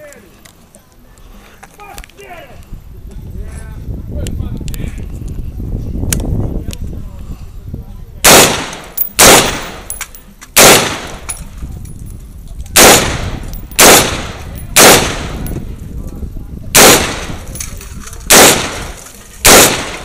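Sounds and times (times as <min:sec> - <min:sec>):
gunshots with echo: 0:08.2 - 0:09.9, 0:10.6 - 0:11.3, 0:12.8 - 0:15.5, 0:16.8 - 0:17.6, 0:18.3 - 0:20.0.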